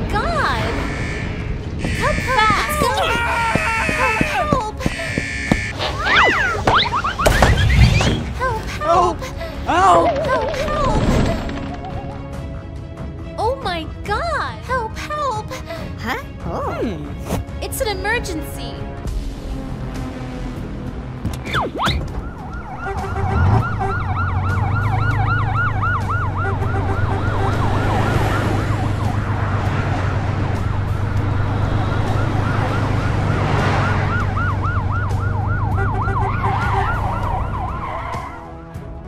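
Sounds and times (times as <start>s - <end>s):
fire engine yelp siren: 0.5s - 3.1s, 4.9s - 5.7s, 21.8s - 38.7s.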